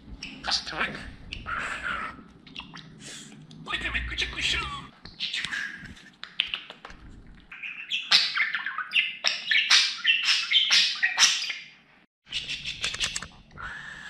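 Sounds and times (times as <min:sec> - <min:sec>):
short clicks and chirps: 0:12.6 - 0:13.3.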